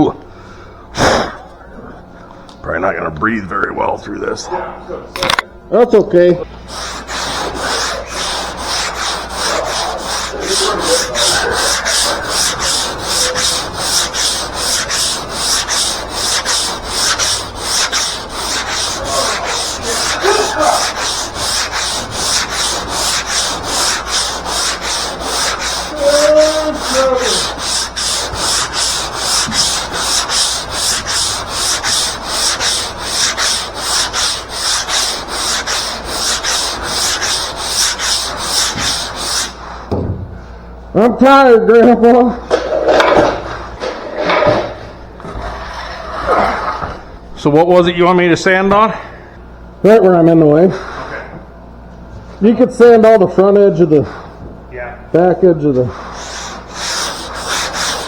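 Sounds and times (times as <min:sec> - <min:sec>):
sandpaper rasping on metal: 0:06.7 - 0:39.6, 0:56.0 - 0:58.0.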